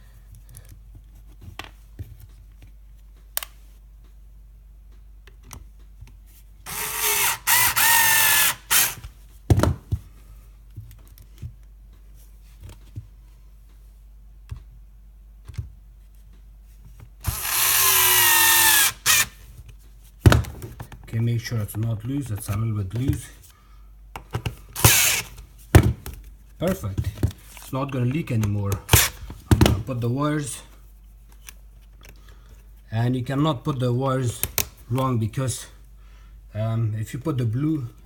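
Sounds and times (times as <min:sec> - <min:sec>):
cordless drill whining: 0:06.7 - 0:09.0, 0:17.2 - 0:19.4, 0:24.8 - 0:25.3.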